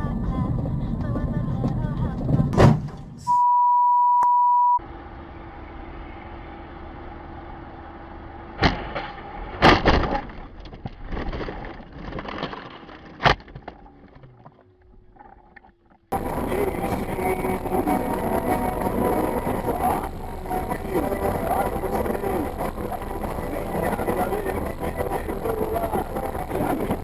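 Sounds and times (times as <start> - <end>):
car engine and road noise: 0.0 - 3.2, 4.8 - 27.0
high beep: 3.3 - 4.8.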